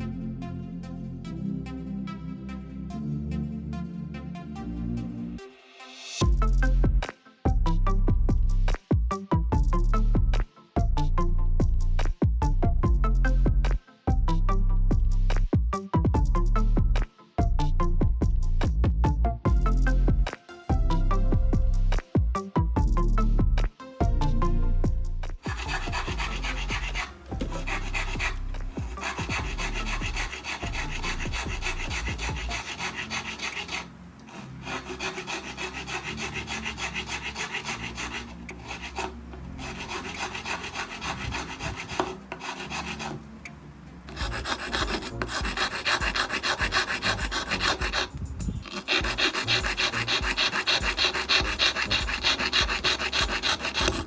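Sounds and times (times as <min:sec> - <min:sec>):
hand file rasping: 0:25.4 - 0:43.2, 0:44.1 - 0:54.0.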